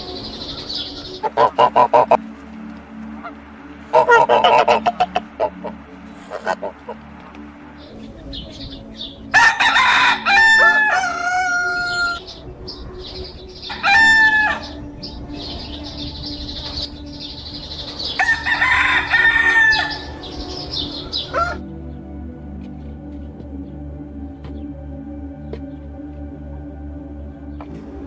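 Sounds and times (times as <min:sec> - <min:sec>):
roosters crowing: 0:00.0 - 0:21.8.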